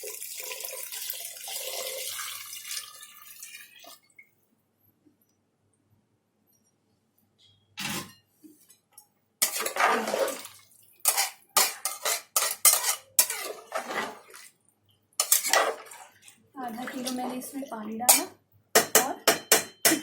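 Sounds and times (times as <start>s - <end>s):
water pouring into pot: 0.0s - 4.2s, 9.5s - 14.6s, 15.2s - 17.7s
metal cookware clattering: 7.8s - 8.7s, 9.4s - 10.4s, 11.0s - 14.4s, 15.2s - 16.0s, 18.0s - 20.0s.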